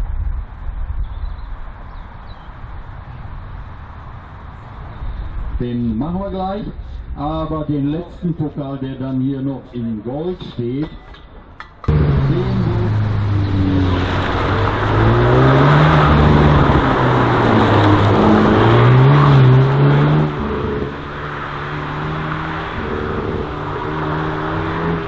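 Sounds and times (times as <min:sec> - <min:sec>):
race car engine revving: 0:11.9 - 0:25.0.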